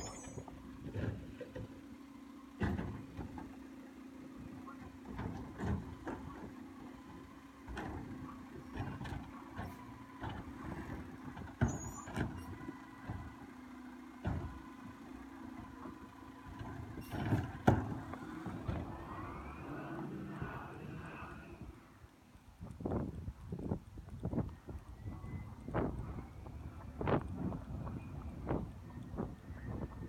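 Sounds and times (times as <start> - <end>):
garbage truck humming: 0.0 - 22.1.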